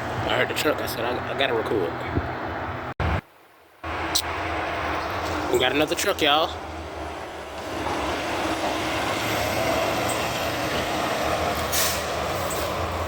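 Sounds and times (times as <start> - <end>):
garbage truck driving by: 6.4 - 13.0
air brakes hissing: 9.2 - 13.0.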